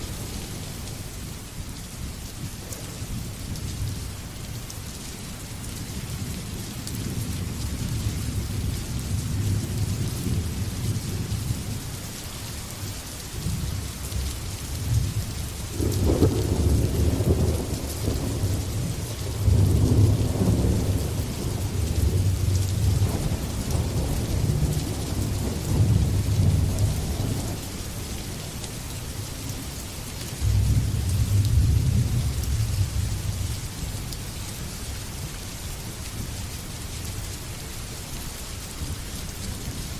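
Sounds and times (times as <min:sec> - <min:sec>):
rain hissing: 0:00.0 - 0:39.9
thunder rumbling: 0:14.9 - 0:27.8, 0:30.4 - 0:33.5.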